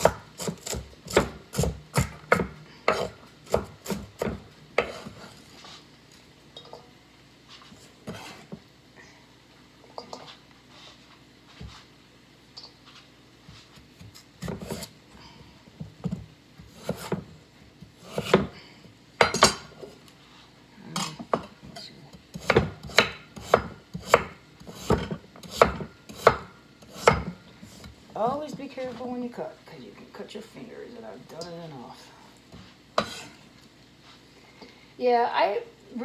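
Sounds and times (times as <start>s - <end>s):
knife chopping on cutting board: 0.0s - 5.3s, 14.0s - 14.9s, 16.0s - 17.3s, 17.9s - 18.6s, 22.3s - 28.0s, 33.0s - 33.3s.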